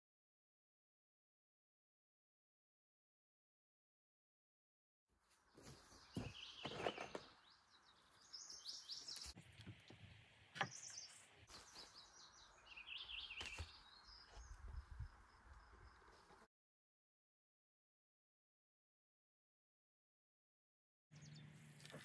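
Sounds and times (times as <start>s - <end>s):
wild birds chirping: 5.5s - 16.5s, 21.1s - 22.0s.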